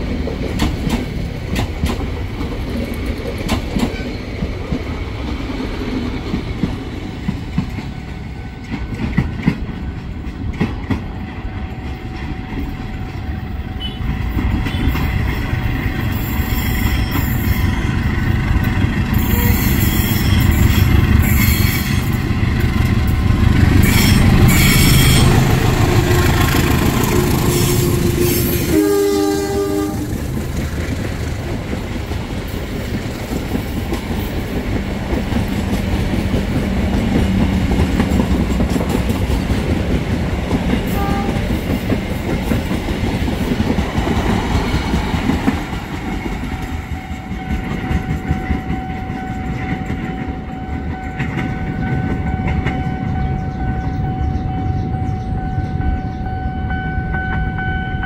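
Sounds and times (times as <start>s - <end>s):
train coaches clattering over rails: 0.0s - 58.0s
locomotive horn blast: 13.6s - 15.0s, 19.1s - 20.6s, 23.6s - 30.2s, 40.9s - 41.5s
steady high tone: 15.2s - 30.4s.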